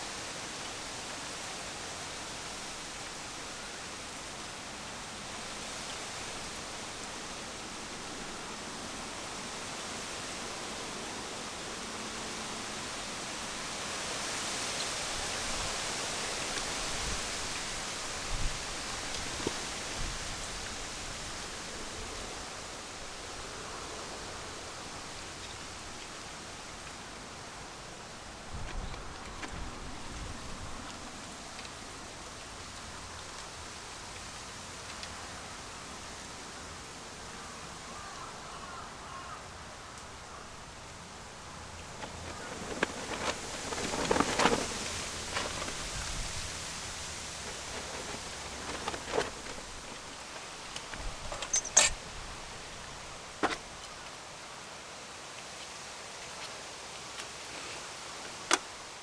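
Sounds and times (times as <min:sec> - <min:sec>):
outdoor night hiss: 0:00.0 - 0:59.0
insects chirping: 0:41.8 - 0:53.6
rustling and knocks: 0:41.9 - 0:52.0, 0:53.3 - 0:53.7.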